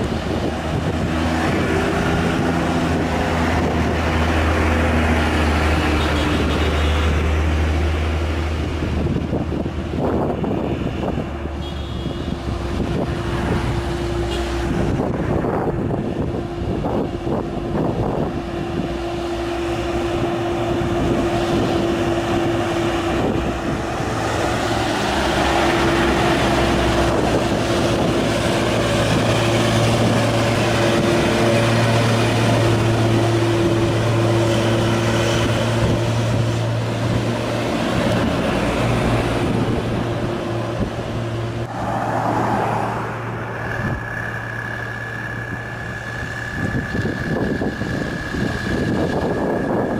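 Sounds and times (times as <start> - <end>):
diesel truck engine under load: 0.0 - 49.9
steady high tone: 41.6 - 49.9.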